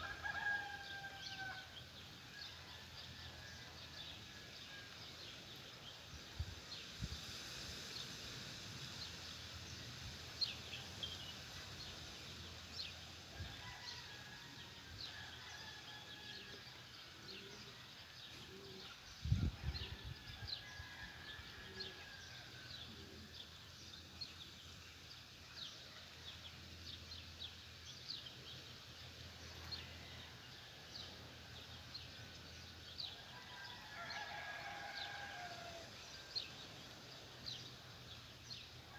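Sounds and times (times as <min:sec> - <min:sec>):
rooster crowing faintly: 0:33.2 - 0:36.5.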